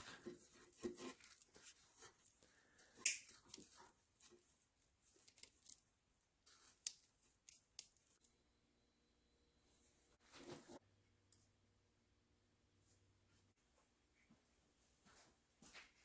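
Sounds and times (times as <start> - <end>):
wires rustling: 0.0 - 8.4.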